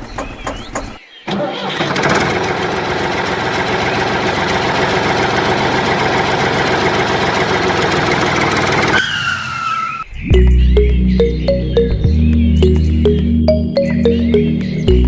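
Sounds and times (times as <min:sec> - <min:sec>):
vehicle engine running: 0:02.8 - 0:08.9.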